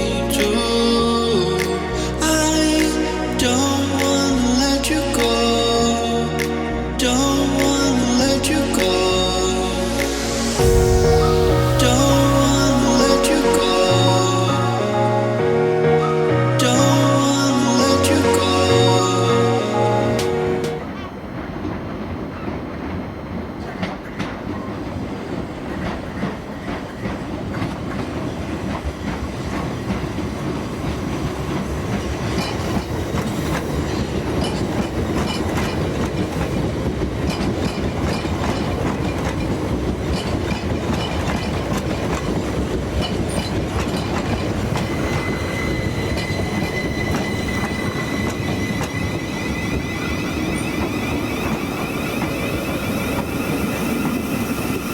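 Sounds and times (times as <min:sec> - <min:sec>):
steady high whine: 0:00.0 - 0:21.4, 0:44.1 - 0:54.9
electric train rumbling: 0:00.0 - 0:54.9.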